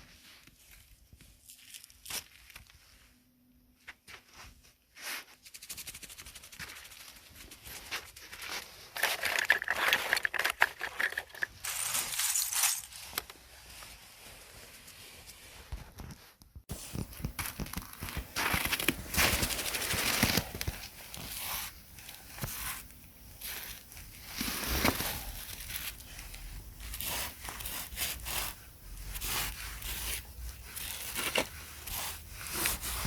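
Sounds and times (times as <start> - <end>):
close crackling and crinkling: 0.0 - 33.0.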